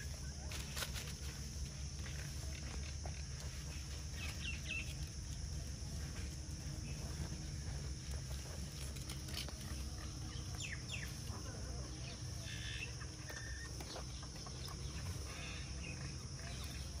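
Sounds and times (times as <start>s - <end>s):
low outdoor rumble: 0.0s - 17.0s
bird clucking calls: 9.6s - 17.0s.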